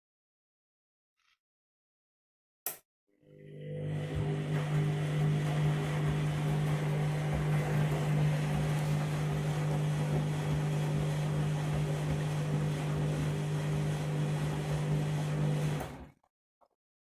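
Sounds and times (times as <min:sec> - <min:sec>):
washing machine humming: 0:03.2 - 0:16.1.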